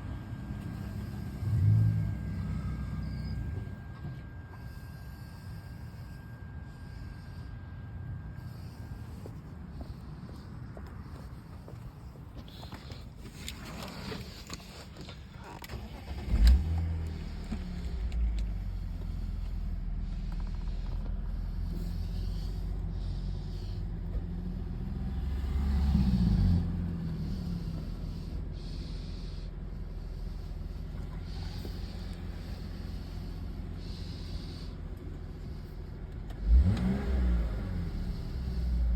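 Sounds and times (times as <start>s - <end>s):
engine revving: 0.0s - 3.9s, 15.7s - 38.9s
car engine starting and idling: 0.0s - 38.9s.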